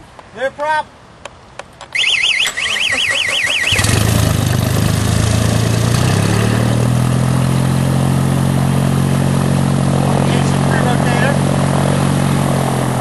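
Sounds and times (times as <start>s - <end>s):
car engine running: 3.6s - 13.0s.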